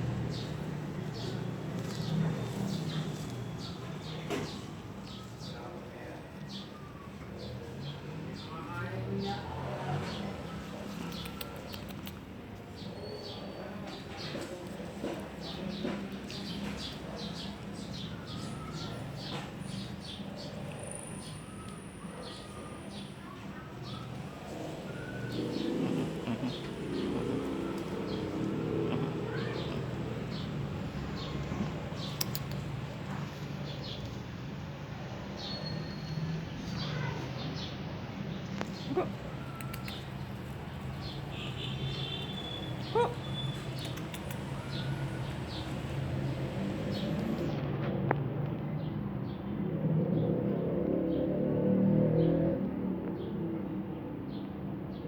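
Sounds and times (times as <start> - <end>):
puppies squeaking and whimpering: 24.9 - 30.5
puppy yelps: 38.8 - 39.9, 42.8 - 43.6.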